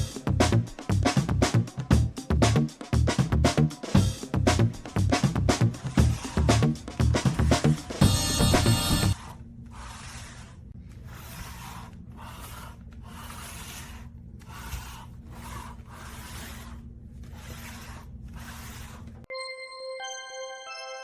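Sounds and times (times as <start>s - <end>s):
music: 0.0s - 9.2s, 19.3s - 21.0s
chair leg scraping on floor: 5.2s - 19.2s.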